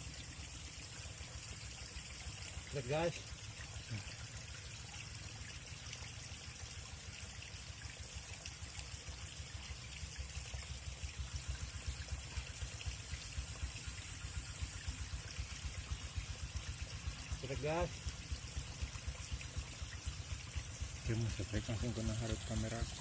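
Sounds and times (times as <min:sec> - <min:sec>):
choppy low rumble: 0:16.9 - 0:23.0.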